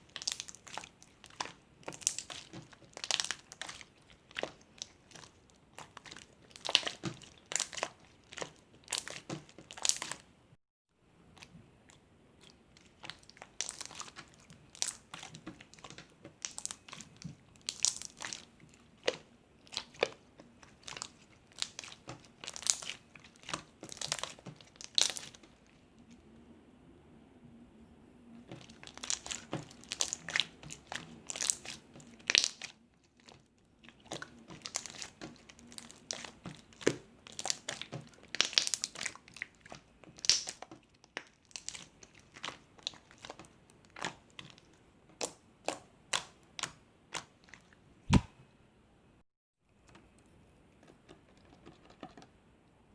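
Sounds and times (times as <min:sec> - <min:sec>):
slime clicking and popping: 0:28.6 - 0:32.7, 0:34.0 - 0:44.6, 0:45.2 - 0:47.3.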